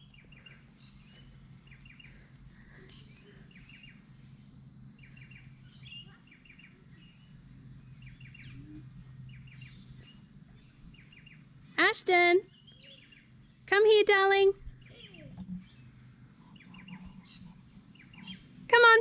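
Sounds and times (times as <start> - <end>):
low steady hum: 0.0 - 19.0
faint bird chirps: 5.0 - 11.4, 14.6 - 18.6.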